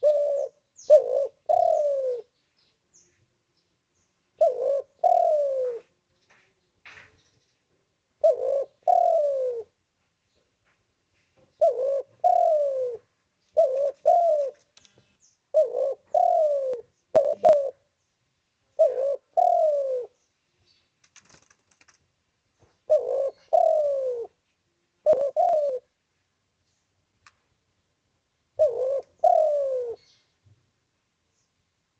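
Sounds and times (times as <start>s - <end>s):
dove cooing: 0.0s - 2.4s, 4.4s - 6.0s, 8.2s - 9.8s, 11.5s - 14.7s, 15.5s - 17.9s, 18.7s - 20.3s, 22.8s - 24.4s, 25.0s - 26.0s, 28.6s - 30.3s
faint sharp clicks: 14.6s - 15.0s, 27.2s - 27.4s.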